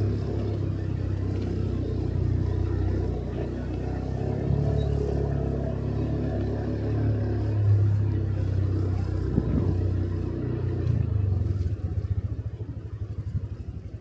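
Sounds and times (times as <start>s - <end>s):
motorcycle engine running: 0.0s - 14.0s
road noise: 0.0s - 14.0s
wind noise: 9.3s - 9.9s.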